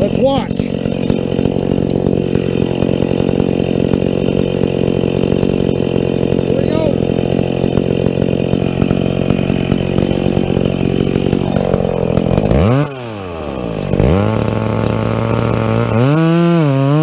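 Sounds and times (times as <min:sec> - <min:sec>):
chainsaw cutting into tree trunk: 0:00.0 - 0:17.0.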